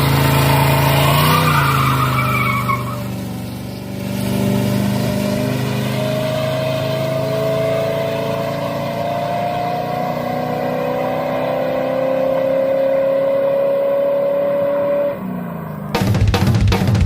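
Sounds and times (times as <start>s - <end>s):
car engine running: 15.9s - 17.0s.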